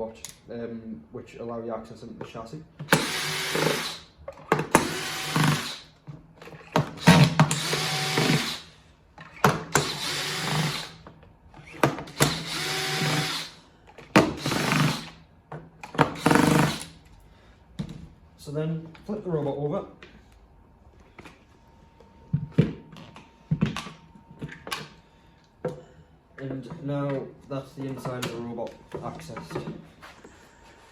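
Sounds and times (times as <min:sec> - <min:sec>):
cordless drill motor: 0:02.9 - 0:06.0, 0:06.9 - 0:08.7, 0:09.7 - 0:11.0, 0:11.6 - 0:13.6, 0:14.4 - 0:15.2, 0:16.1 - 0:17.0.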